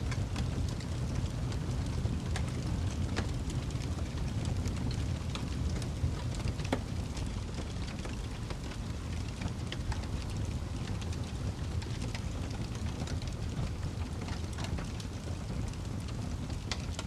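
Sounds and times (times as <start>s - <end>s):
burning logs crackling and popping: 0.0s - 17.0s
low rumble of flames: 0.0s - 17.0s.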